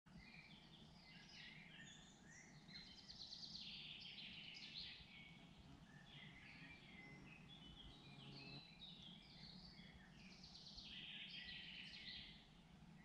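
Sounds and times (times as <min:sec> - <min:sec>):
faint songbirds chirping: 0:00.1 - 0:13.0.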